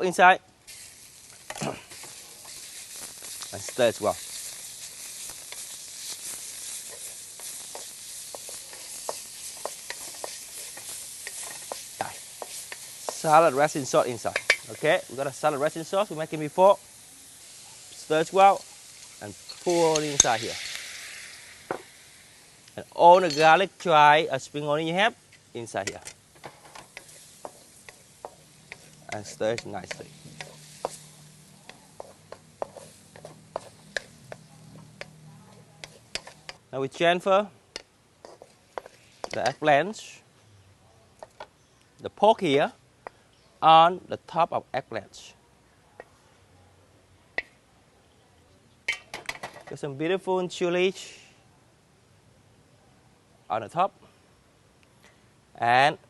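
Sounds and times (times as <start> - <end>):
meat sizzling in hot oil: 0.6 - 37.3, 38.2 - 40.1
utensil scraping a wok: 0.7 - 23.9, 25.2 - 36.7, 37.8 - 39.7.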